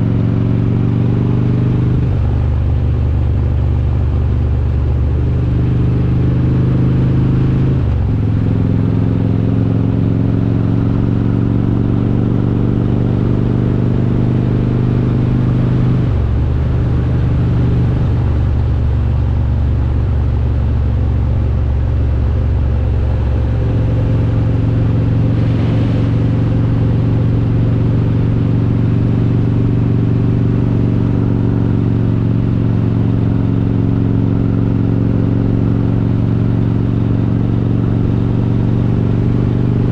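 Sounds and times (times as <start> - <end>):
motorcycle engine exhaust note: 14.8 - 39.4.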